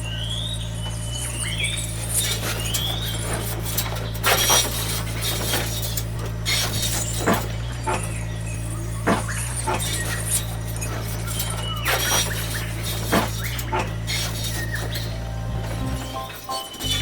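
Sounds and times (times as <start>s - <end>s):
low hum: 15.1s - 17.0s.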